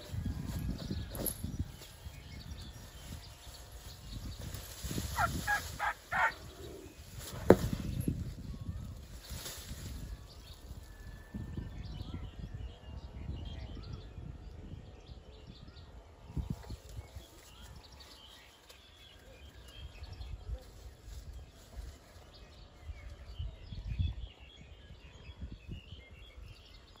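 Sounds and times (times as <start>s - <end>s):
small birds chirping: 0.0s - 10.9s.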